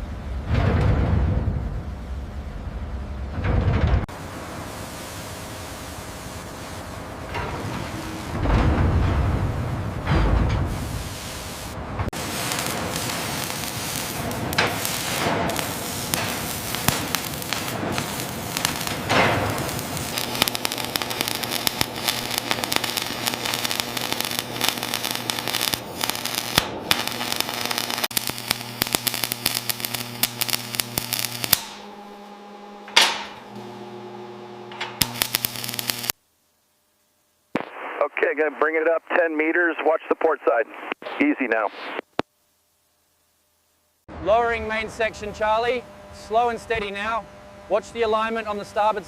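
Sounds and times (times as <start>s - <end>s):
electrical hum: 0.0s - 49.0s
arc welding crackling: 4.2s - 8.5s, 10.7s - 32.1s, 34.9s - 36.2s.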